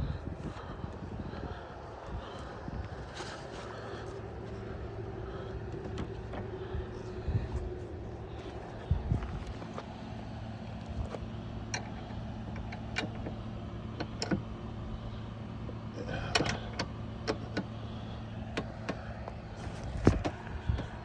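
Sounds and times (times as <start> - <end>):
steady low hum: 0.0 - 21.0
clicks and knocks of tent frame: 18.5 - 21.0.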